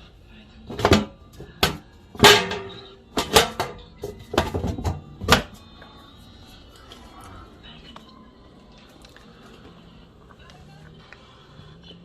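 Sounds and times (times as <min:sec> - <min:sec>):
objects knocking and clattering: 0:00.7 - 0:05.6.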